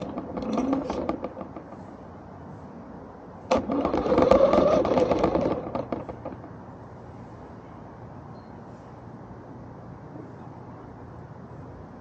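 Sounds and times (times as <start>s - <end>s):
toy car electric motor whirring: 0.0s - 1.6s, 3.5s - 6.4s
wheels clattering over ground: 0.0s - 1.9s, 3.5s - 6.6s.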